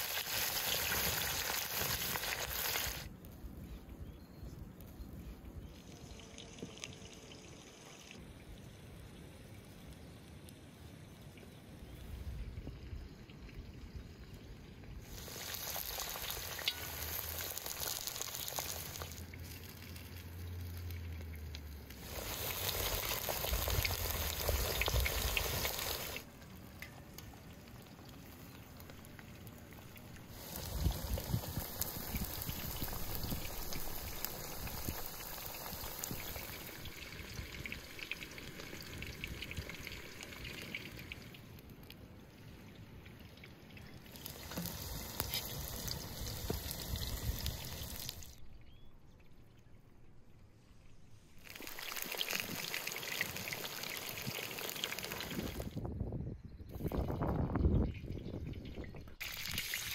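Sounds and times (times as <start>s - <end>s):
vegetables sizzling in hot oil: 0.0s - 3.1s, 15.0s - 21.1s, 21.8s - 26.2s, 30.3s - 38.7s, 44.1s - 48.3s, 51.4s - 55.7s.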